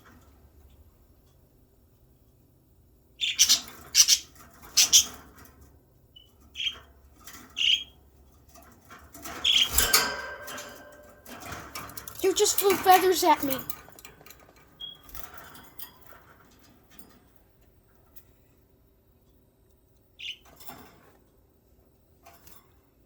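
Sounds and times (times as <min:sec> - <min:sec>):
budgerigars squawking and chirping: 0:03.2 - 0:05.2, 0:07.6 - 0:07.9.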